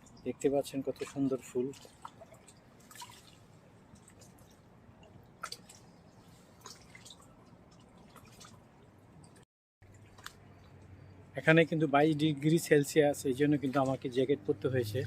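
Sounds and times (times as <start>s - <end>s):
river water trickling over rocks: 0.0s - 14.6s.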